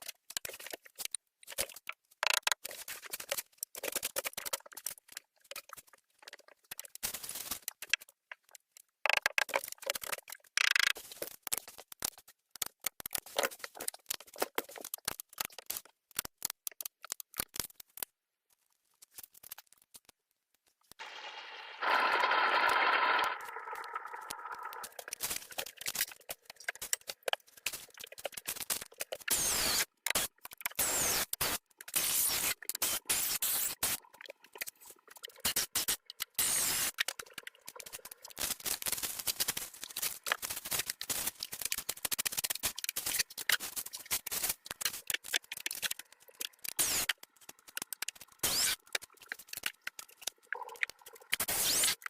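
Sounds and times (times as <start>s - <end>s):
scraping and scratching: 21.0s - 30.8s.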